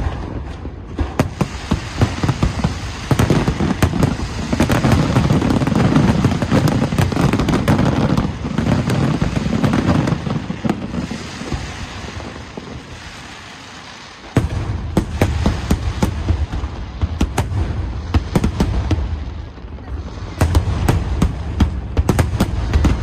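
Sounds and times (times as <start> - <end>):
loud firework bang: 0.0 - 8.1
firework cracks: 0.0 - 19.6, 20.2 - 23.0
fireworks bursting: 0.0 - 23.0.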